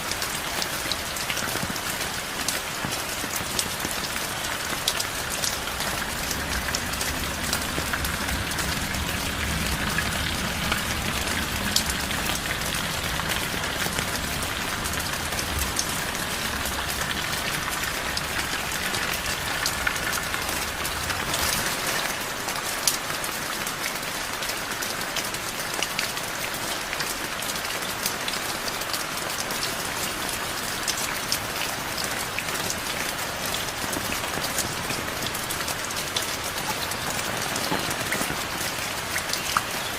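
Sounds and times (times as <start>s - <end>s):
heavy rain pattering: 0.0s - 39.9s
low rumble: 4.6s - 21.4s.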